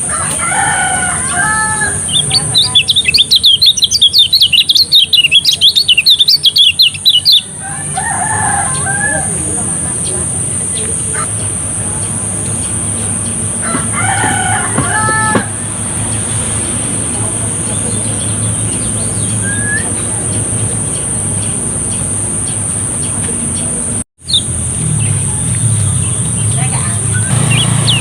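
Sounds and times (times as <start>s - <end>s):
rooster crowing: 0.0s - 2.2s, 7.5s - 9.8s, 13.6s - 16.0s.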